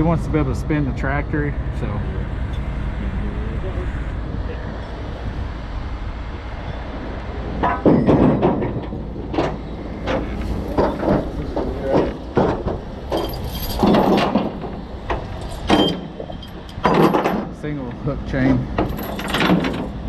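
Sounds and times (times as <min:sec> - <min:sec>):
truck engine rumbling: 0:00.0 - 0:20.0
steel chain clanking and rattling: 0:07.5 - 0:17.8, 0:18.5 - 0:20.0.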